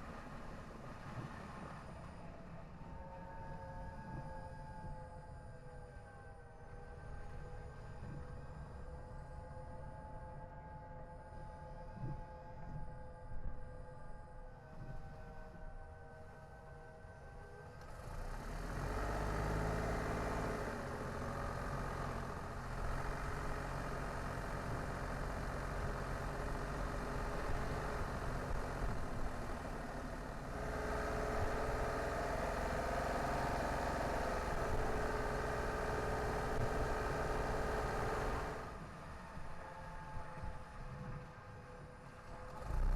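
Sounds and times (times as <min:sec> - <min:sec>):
car engine and road noise: 0:00.0 - 0:03.0, 0:17.4 - 0:42.9.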